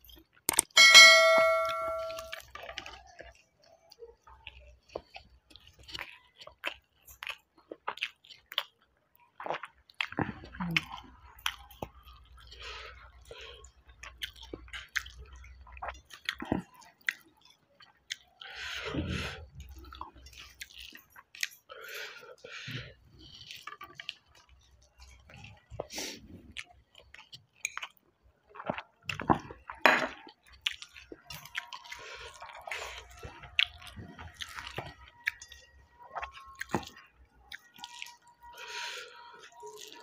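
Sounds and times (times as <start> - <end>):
person chewing with wet mouth clicks: 4.4 - 8.8, 14.0 - 18.6, 26.5 - 40.0.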